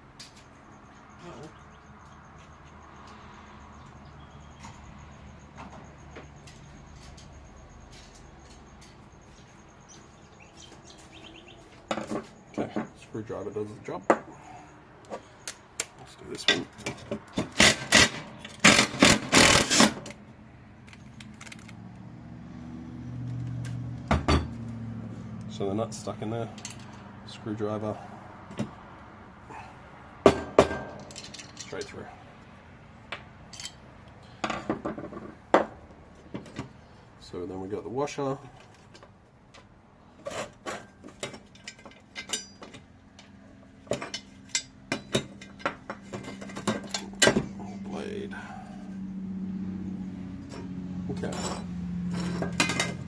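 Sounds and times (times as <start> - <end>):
metallic scraping and rattling: 16.4 - 20.2, 30.4 - 32.0, 40.1 - 42.9, 43.8 - 47.4, 50.4 - 53.0
metal parts clinking: 20.9 - 21.8, 30.8 - 32.0, 33.5 - 33.8, 40.3 - 42.9.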